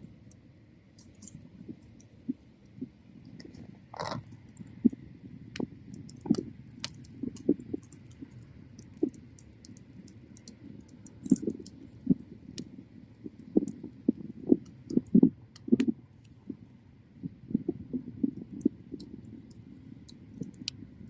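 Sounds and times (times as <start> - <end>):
faint steady hiss: 0.0 - 21.0
wood fire crackling: 0.1 - 16.6, 17.5 - 21.0.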